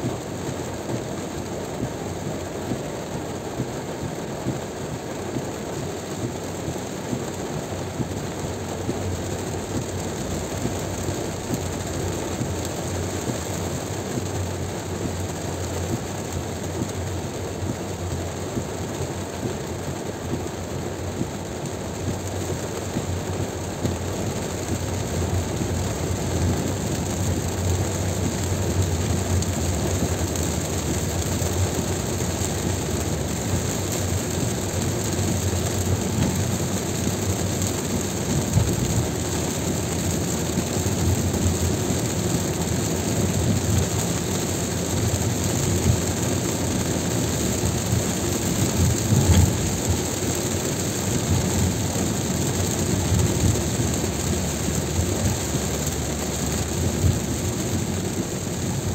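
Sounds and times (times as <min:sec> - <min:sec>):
rain rushing: 0:00.0 - 0:58.9
tyres on wet road: 0:00.0 - 0:58.9.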